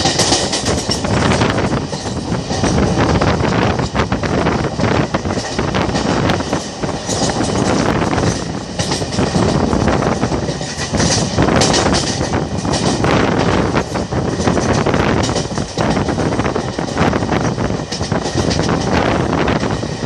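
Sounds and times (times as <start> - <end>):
sharp wheel clacks: 0.0 - 2.8, 5.3 - 13.6
train wheels rumbling on rails: 0.0 - 20.0.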